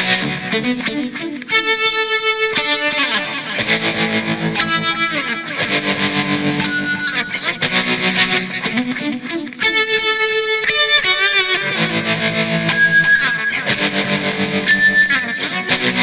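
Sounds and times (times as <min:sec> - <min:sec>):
overdriven electric guitar: 0:00.0 - 0:16.0.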